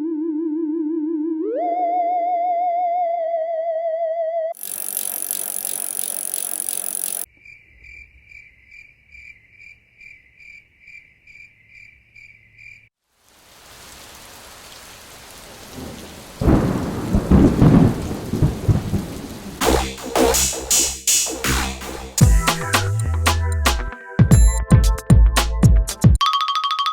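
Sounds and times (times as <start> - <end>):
high pulsing beeps: 4.6 - 7.3
loud hiss: 19.6 - 22.6.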